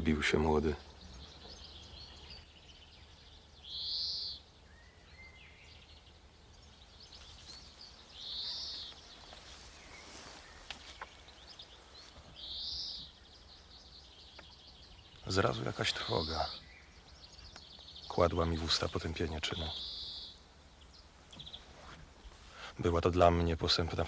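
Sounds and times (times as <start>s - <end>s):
faint bird chirps: 0.0s - 24.0s
bird short high calls: 7.6s - 13.7s, 19.4s - 20.4s.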